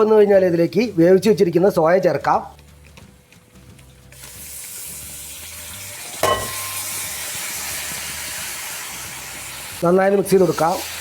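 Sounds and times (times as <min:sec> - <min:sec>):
food sizzling in hot oil: 0:04.0 - 0:11.0.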